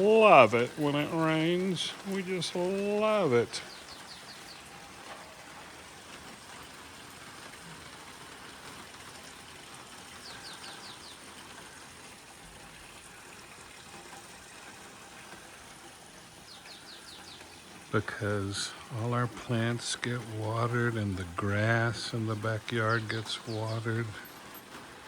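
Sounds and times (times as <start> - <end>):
bird chirping: 0.0 - 4.8, 10.2 - 11.3, 16.4 - 24.3
steady rain hiss: 0.0 - 25.0.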